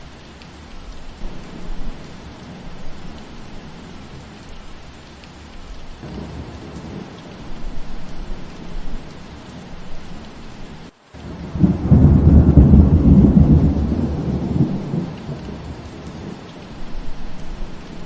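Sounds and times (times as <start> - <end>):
steady rain: 0.0 - 18.0
thunder rumbling: 1.2 - 4.3, 6.0 - 18.0.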